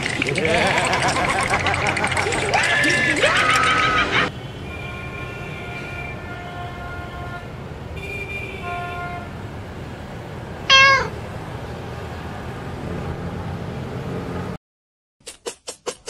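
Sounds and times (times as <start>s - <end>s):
cat meow: 10.7s - 11.2s.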